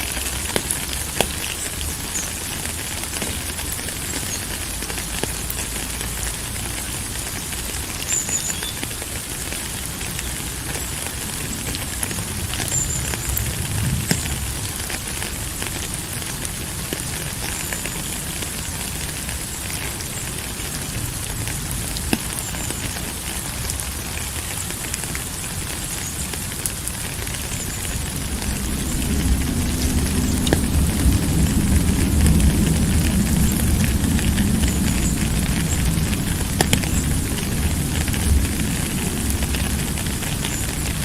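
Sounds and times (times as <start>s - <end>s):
steady rain hiss: 0.0s - 41.0s
low rumble: 27.9s - 40.2s.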